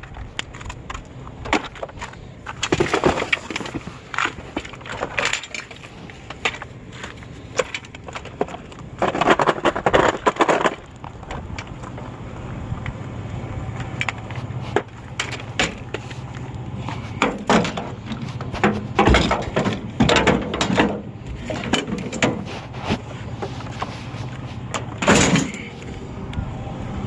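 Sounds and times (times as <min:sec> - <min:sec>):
clunks and rattles: 0:00.0 - 0:26.4
engine and road drone: 0:00.0 - 0:27.0.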